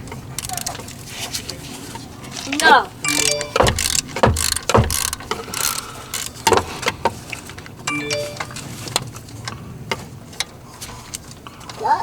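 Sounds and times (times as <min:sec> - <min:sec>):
socket ratchet clicking: 0:00.4 - 0:00.8, 0:03.1 - 0:06.6
tools clinking on bolts: 0:03.1 - 0:06.4.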